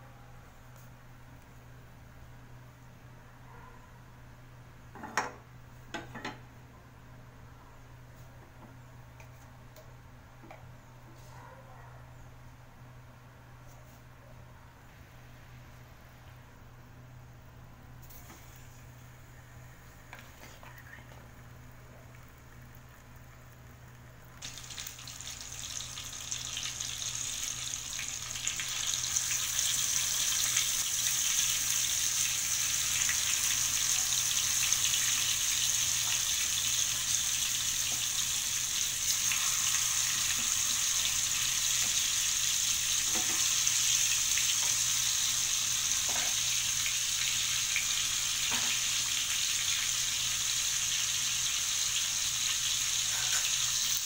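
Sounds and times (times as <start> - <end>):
oil sizzling in a frying pan: 21.3 - 54.0.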